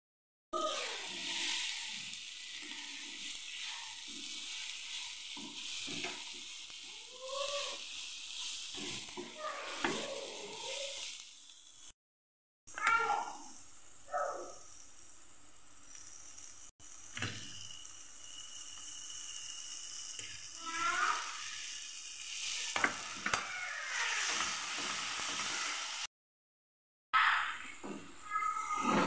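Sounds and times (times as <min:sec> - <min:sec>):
vegetables sizzling in pan: 0:00.6 - 0:12.0, 0:12.7 - 0:26.1
spatula scraping pan: 0:00.7 - 0:11.2.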